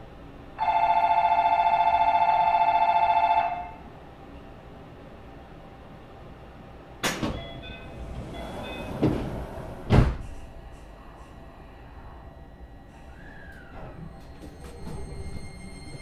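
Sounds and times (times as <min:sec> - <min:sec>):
train car low hum: 0:00.0 - 0:16.0
train doors thudding shut: 0:07.0 - 0:10.5.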